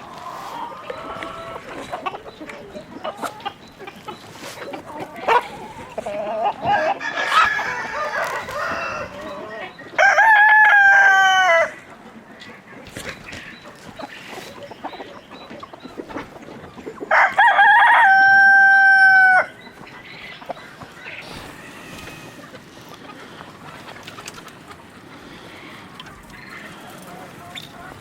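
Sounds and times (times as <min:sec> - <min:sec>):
chickens clucking: 0:00.0 - 0:28.0
rooster crowing: 0:06.7 - 0:11.8, 0:17.1 - 0:19.5.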